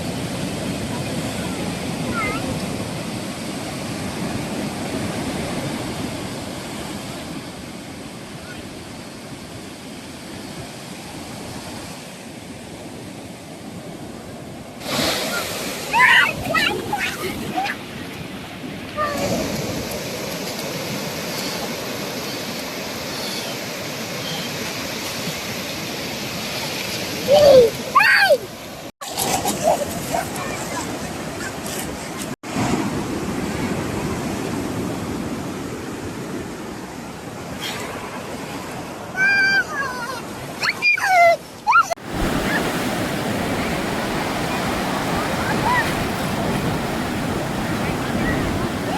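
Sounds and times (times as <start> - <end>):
ocean waves washing onto beach: 0.0 - 48.9.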